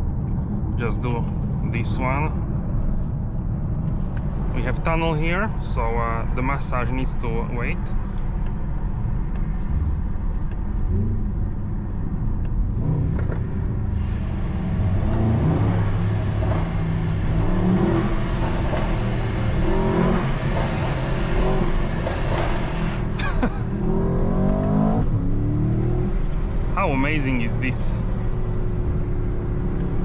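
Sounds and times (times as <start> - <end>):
car engine accelerating hard: 9.7 - 30.0.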